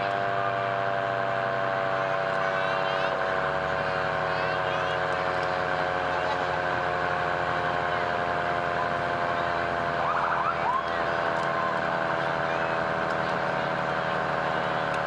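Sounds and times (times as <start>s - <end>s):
fire truck engine droning: 0.0s - 15.0s
siren wails: 7.8s - 15.0s.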